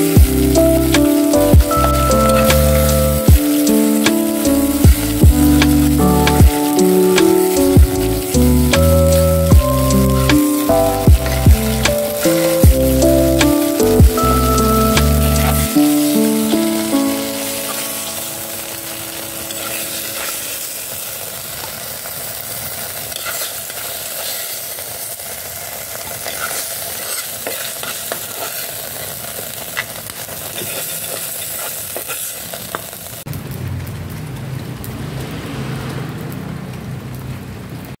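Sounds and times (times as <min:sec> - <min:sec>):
low background music: 0:00.0 - 0:20.7
oil sizzling in a pot: 0:00.0 - 0:38.0
metal spatula scraping a pot: 0:23.1 - 0:24.5, 0:26.2 - 0:29.1, 0:29.8 - 0:32.3.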